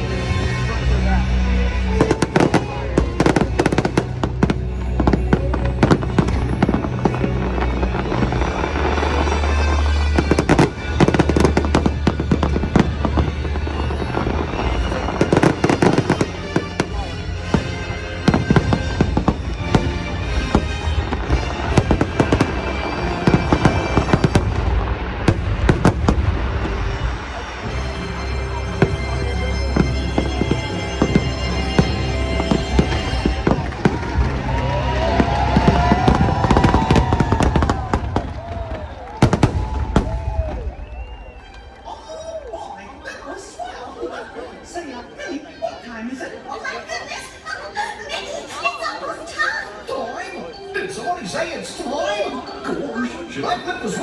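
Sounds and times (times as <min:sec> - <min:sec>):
fireworks bangs and cracks: 0:01.9 - 0:42.0.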